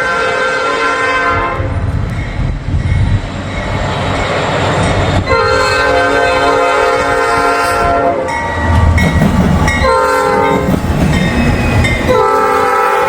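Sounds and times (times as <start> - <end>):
locomotive air horn blasts: 0.0 - 1.9, 5.3 - 8.4, 9.8 - 10.6, 12.1 - 13.0.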